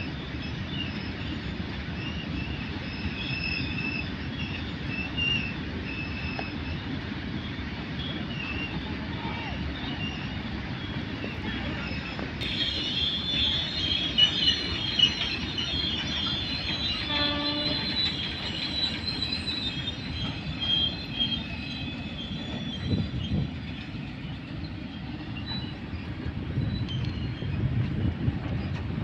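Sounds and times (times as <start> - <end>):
high wheel squeal: 0.0 - 27.7
train rumbling past: 0.0 - 29.0
train horn: 17.0 - 18.0.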